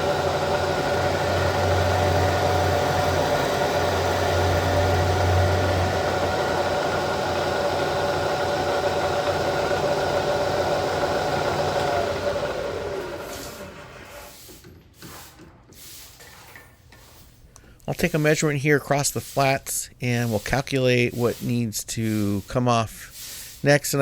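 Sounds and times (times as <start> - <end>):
milling machine motor whining: 0.0 - 14.2.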